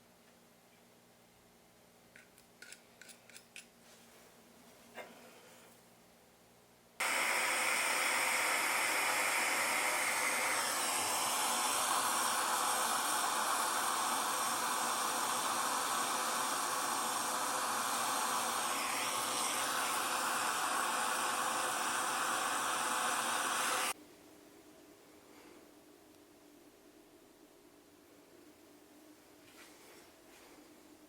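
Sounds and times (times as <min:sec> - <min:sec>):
gas torch flame hissing: 0:07.0 - 0:24.0.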